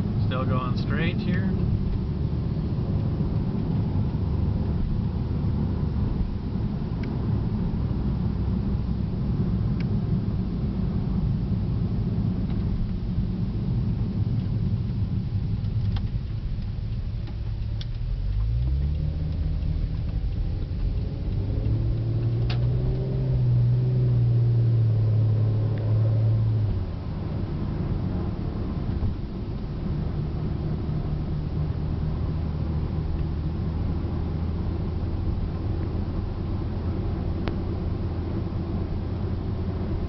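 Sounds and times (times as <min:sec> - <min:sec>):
car cabin road and engine noise: 0:00.0 - 0:40.0.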